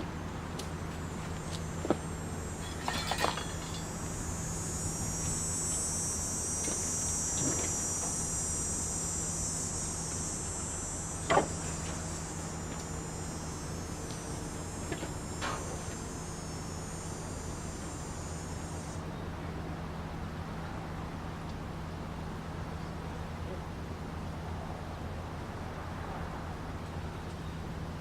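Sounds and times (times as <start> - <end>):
low steady hum: 0.0 - 28.0
high-pitched insect chorus: 0.4 - 19.0.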